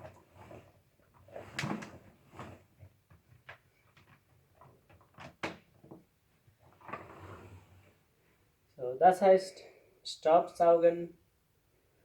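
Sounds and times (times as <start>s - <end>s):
objects being handled: 0.0s - 8.0s.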